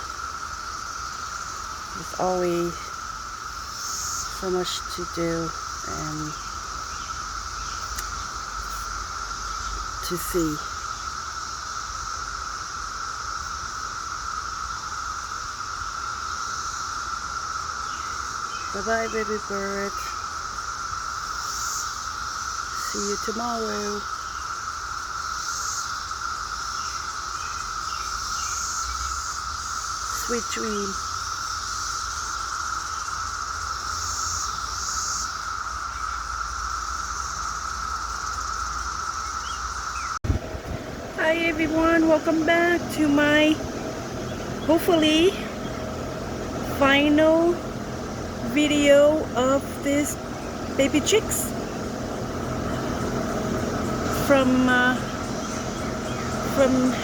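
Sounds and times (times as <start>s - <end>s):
insect chorus droning: 0.0s - 57.0s
low rumble: 40.2s - 57.0s.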